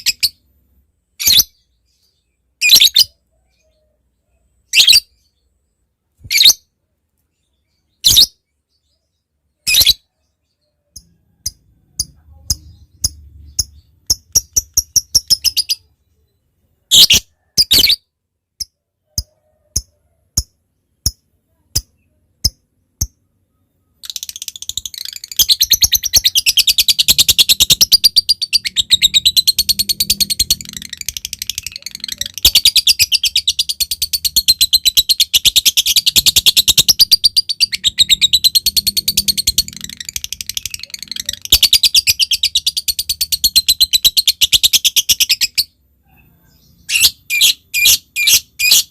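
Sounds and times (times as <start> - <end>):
lovebird calling: 23.8 - 45.8.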